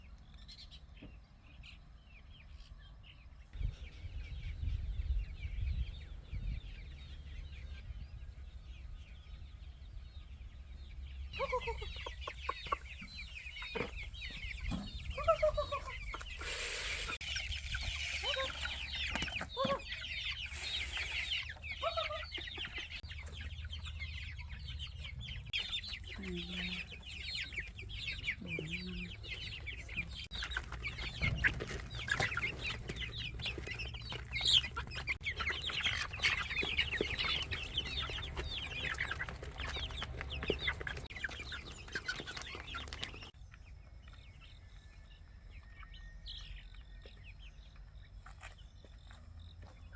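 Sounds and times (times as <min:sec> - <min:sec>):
chickens clucking: 0:03.5 - 0:49.9
high chirping: 0:11.1 - 0:43.4
hissing bursts of noise: 0:16.4 - 0:17.2.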